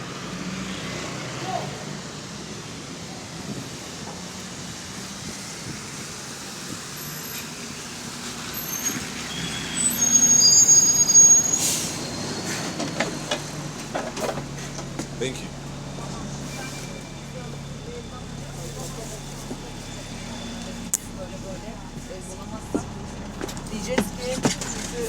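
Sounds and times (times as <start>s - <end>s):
bus engine running: 0.0s - 25.0s
brakes squealing: 6.6s - 25.0s
air brake hiss: 10.8s - 12.7s.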